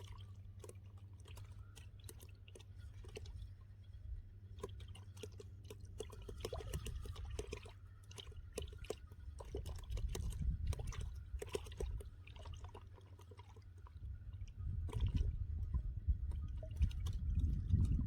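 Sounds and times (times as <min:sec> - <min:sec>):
water splashing and dripping: 0:04.5 - 0:18.0
steady low rumble: 0:13.8 - 0:18.0.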